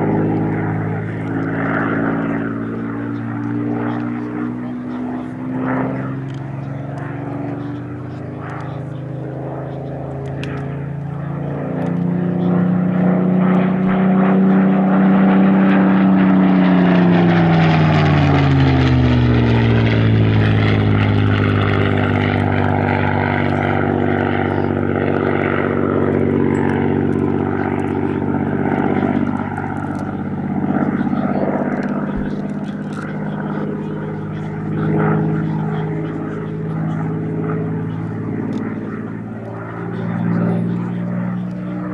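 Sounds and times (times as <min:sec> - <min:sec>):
propeller aircraft passing: 0:00.0 - 0:41.9.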